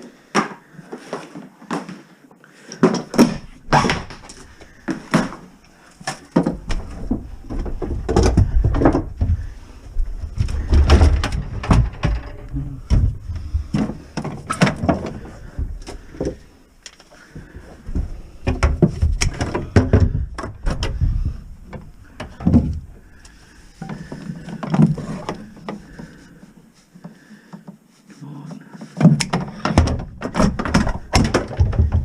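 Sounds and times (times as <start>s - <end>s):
knocks and clattering of hard objects: 2.7s - 16.5s, 17.1s - 23.2s, 28.9s - 32.0s.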